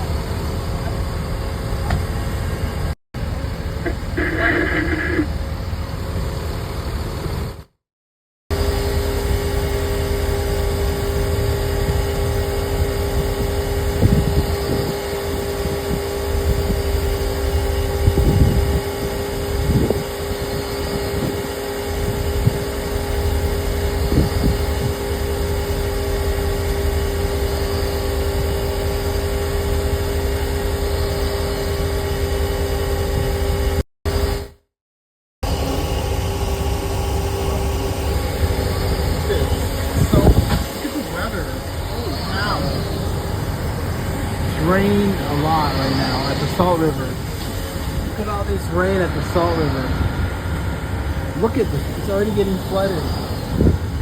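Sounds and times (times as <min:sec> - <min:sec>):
vehicle engine idling: 0:00.0 - 0:07.3, 0:35.5 - 0:54.0.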